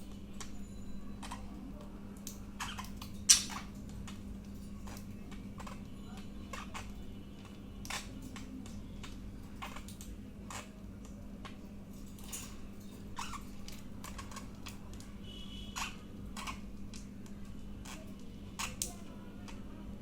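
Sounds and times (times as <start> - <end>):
budgerigars chirping and clicking: 1.2 - 1.6, 2.2 - 19.1.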